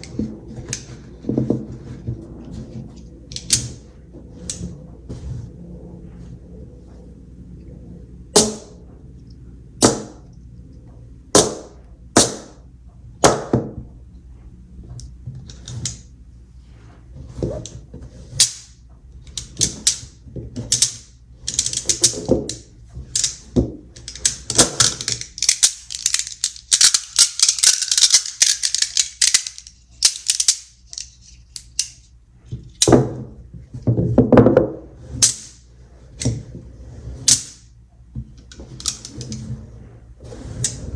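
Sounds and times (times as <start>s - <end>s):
magnet balls clattering: 2.9s - 4.7s, 18.1s - 32.1s, 38.5s - 39.5s
magnet balls snapping together: 20.7s - 32.0s.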